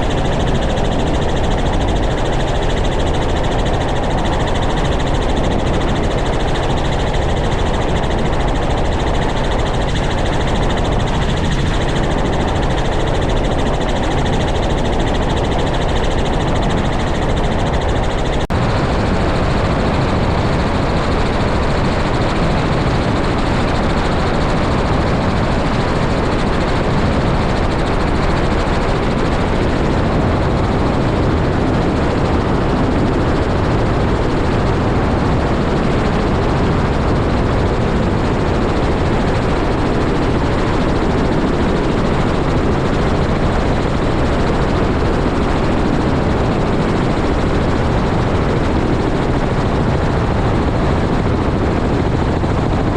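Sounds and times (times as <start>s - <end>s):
helicopter engine and rotor: 0.0s - 52.9s.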